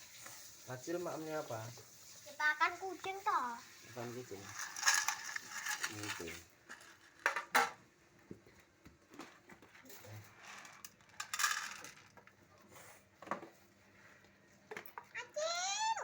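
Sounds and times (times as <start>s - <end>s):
dish clinking and knocking: 7.2s - 7.8s.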